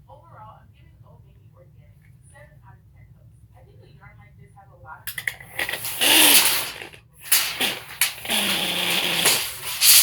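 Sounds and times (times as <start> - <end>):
tape measure rattling whir: 5.1 - 10.0.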